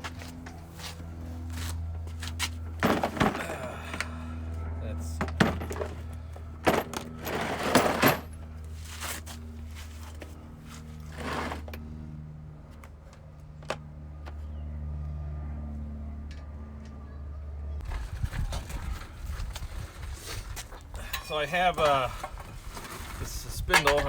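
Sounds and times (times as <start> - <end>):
steady low hum: 0.0 - 23.2
metal car parts clanking: 2.7 - 4.2, 5.2 - 8.4, 23.6 - 24.0
metal scrape: 11.0 - 11.7.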